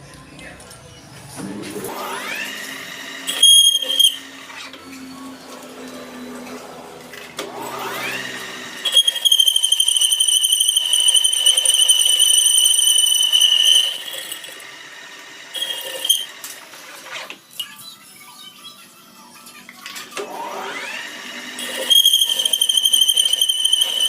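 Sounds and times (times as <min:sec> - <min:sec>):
metalworking machine motor whine: 0:01.7 - 0:17.0, 0:20.2 - 0:24.0.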